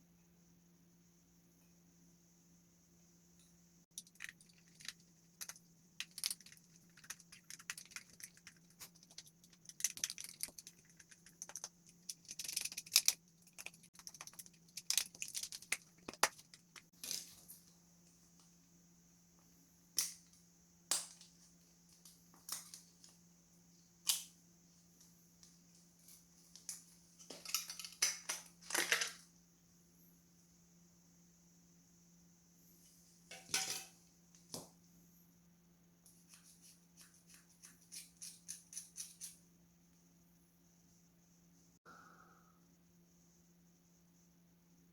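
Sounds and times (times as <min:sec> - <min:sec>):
faint steady hum: 0:00.0 - 0:44.9
plastic parts clicking and scraping: 0:04.0 - 0:17.3.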